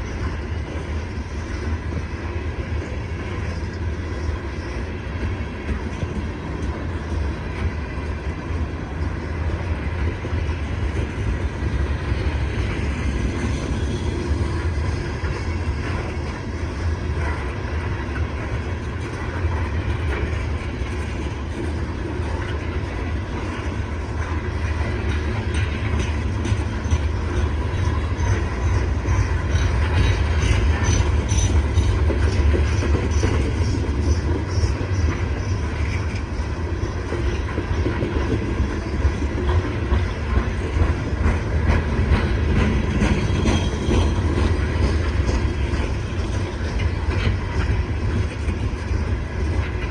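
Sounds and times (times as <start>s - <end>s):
freight cars rumbling: 0.0s - 49.9s
wheels clicking over rail joints: 0.0s - 49.9s
faint high wheel squeal: 27.6s - 37.6s.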